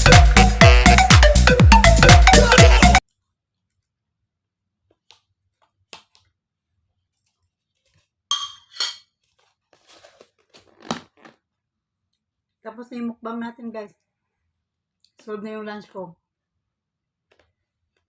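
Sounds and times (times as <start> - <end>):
dishes clinking: 8.3 - 9.1
scraping and rustling: 9.2 - 11.4.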